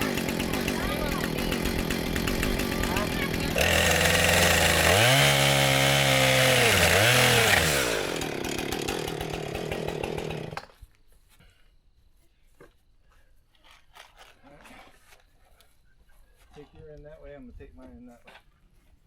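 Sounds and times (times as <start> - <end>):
small gasoline engine revving: 0.0 - 10.6.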